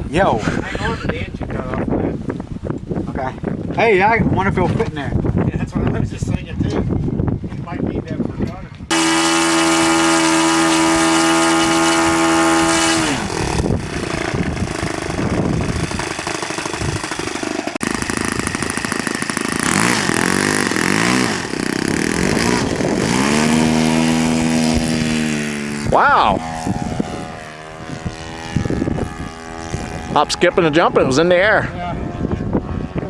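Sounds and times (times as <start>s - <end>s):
model airplane motor and propeller: 8.1s - 33.0s.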